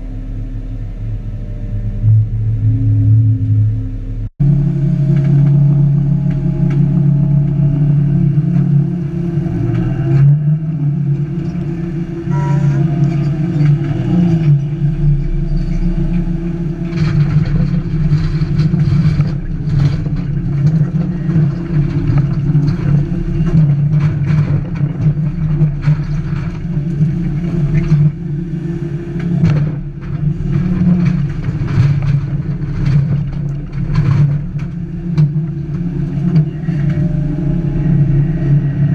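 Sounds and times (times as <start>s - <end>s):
excavator diesel engine running: 0.0s - 38.9s
short knocks and clatters: 11.0s - 38.0s.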